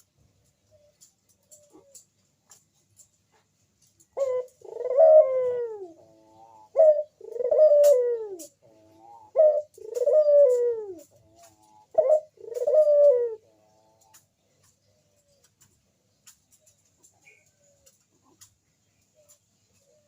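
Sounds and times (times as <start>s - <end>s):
dove cooing: 0.7s - 2.1s, 4.0s - 15.7s, 19.1s - 20.0s.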